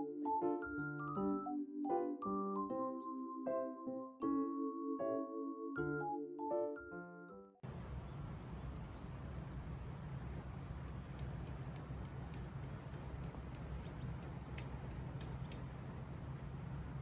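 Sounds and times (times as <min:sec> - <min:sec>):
piano music: 0:00.0 - 0:07.6.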